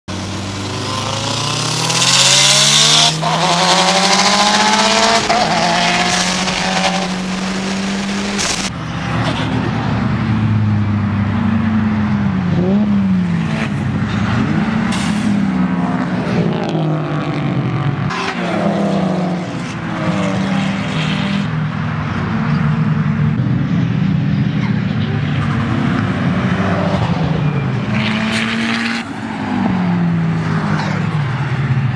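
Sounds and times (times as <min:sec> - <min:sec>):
car engine at full throttle: 0:00.1 - 0:18.3
cars accelerating past: 0:00.2 - 0:24.4.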